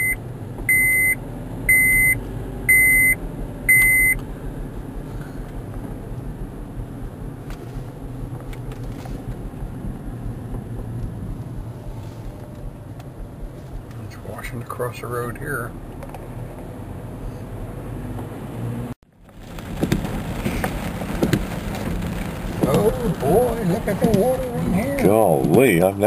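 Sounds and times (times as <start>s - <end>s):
electronic warning beeps: 0.0s - 4.2s
low vehicle rumble: 0.0s - 26.0s
rain: 19.2s - 25.8s.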